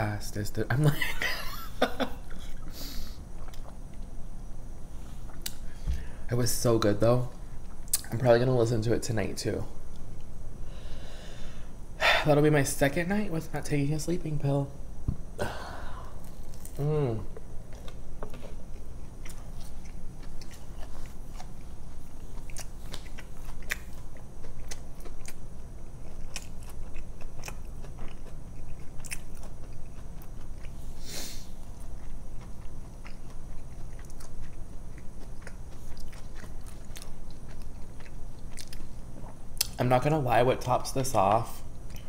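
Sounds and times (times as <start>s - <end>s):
low steady hum: 0.0s - 42.0s
person chewing sandwich: 2.2s - 4.1s, 5.1s - 5.8s, 15.4s - 39.8s, 41.7s - 42.0s
short hiss: 31.0s - 31.5s.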